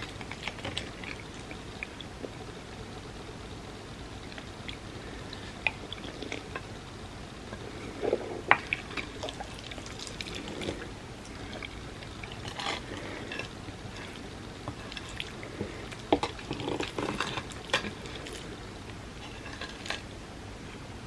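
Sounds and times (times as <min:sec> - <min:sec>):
wet mouth eating sounds: 0:07.6 - 0:18.6.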